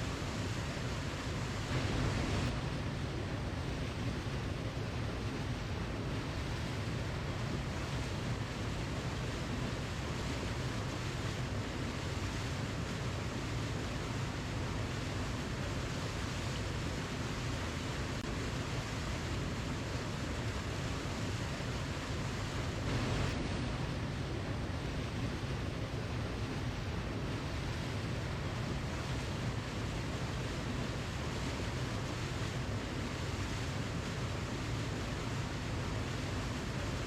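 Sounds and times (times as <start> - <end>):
waterfall rushing: 1.4 - 2.5.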